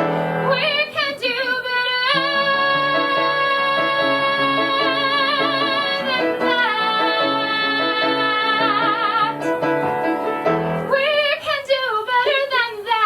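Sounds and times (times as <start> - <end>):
piano chords: 0.0 - 0.9, 2.0 - 11.2
woman singing with vibrato: 0.0 - 9.9, 10.8 - 13.0.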